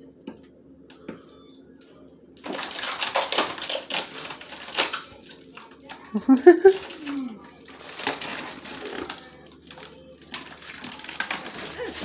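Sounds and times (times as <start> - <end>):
small hard objects clattering: 2.4 - 6.0, 6.6 - 12.0.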